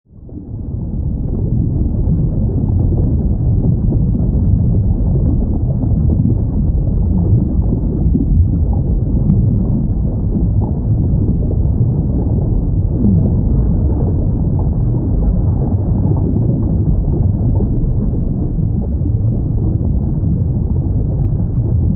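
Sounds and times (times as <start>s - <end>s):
low rumbling underwater ocean: 0.1s - 21.9s.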